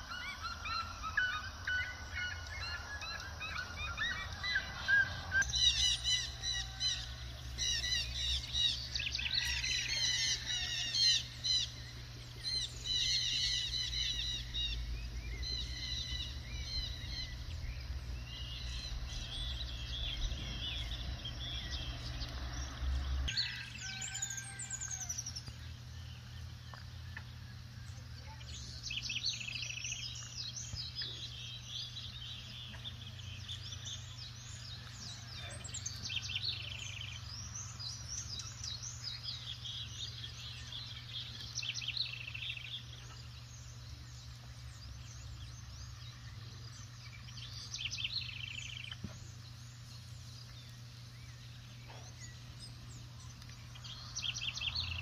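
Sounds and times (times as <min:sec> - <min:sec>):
birds chirping and singing: 0:00.0 - 0:55.0
low rumble: 0:11.3 - 0:23.3.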